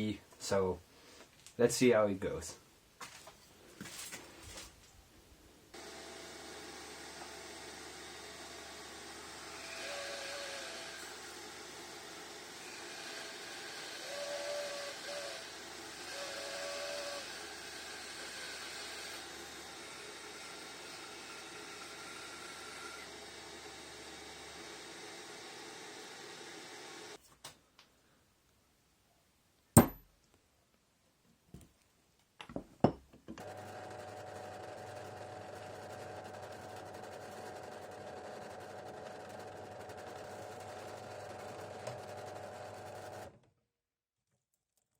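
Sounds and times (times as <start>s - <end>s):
sharp ringing knock: 29.8s - 30.0s.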